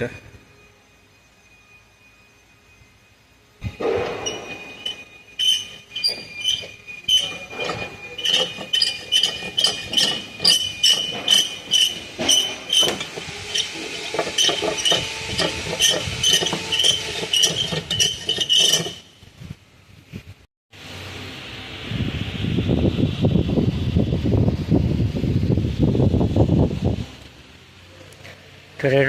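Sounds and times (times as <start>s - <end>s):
metal tools clinking on engine parts: 4.7s - 19.1s.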